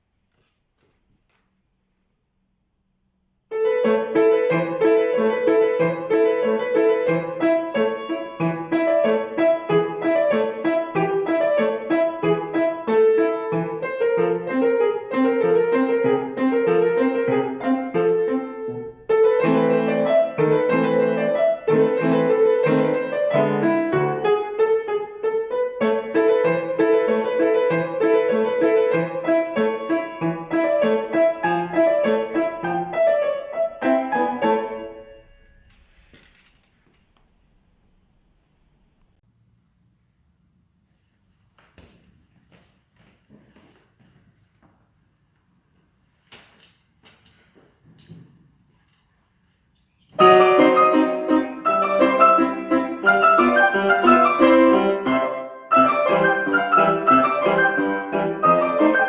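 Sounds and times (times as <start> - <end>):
piano playing classical piece: 3.5 - 36.6, 50.1 - 59.0.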